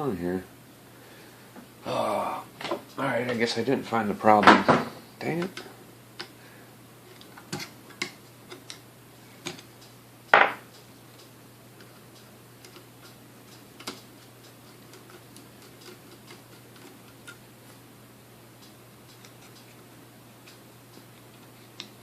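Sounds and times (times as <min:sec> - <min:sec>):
small parts clicking and tapping: 0:07.2 - 0:08.8, 0:10.7 - 0:17.4.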